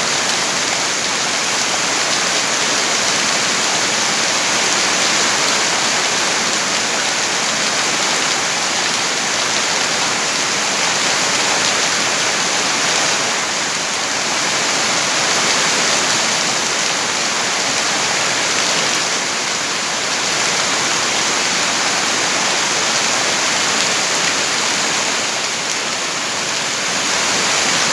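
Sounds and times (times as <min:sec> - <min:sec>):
heavy rain falling: 0:00.0 - 0:27.9.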